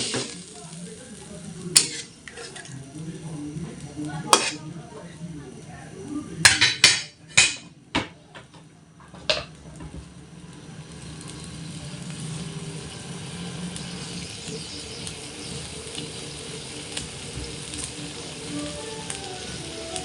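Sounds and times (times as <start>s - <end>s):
food sizzling in pan: 0.0s - 7.7s, 9.1s - 20.0s.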